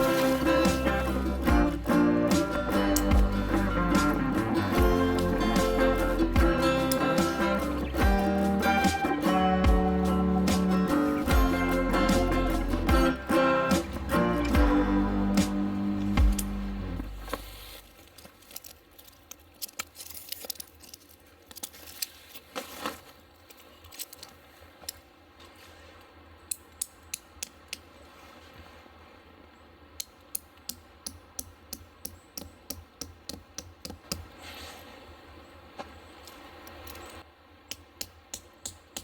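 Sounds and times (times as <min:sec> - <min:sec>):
guitar music: 0:00.0 - 0:17.3.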